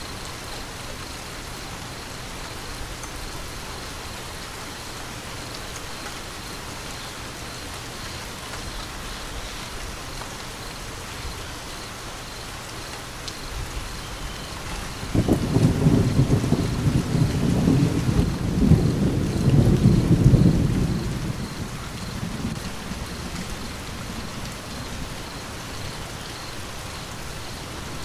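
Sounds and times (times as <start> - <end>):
rain pattering: 0.0 - 28.0
low thunder rumble: 13.5 - 26.6.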